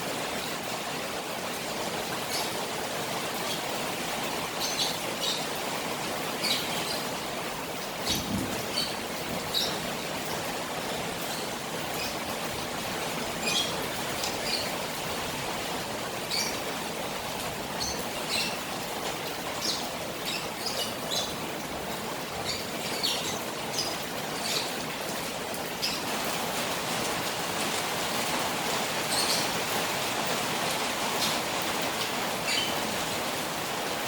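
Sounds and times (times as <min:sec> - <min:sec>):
rain falling on a pond: 0:00.0 - 0:34.0.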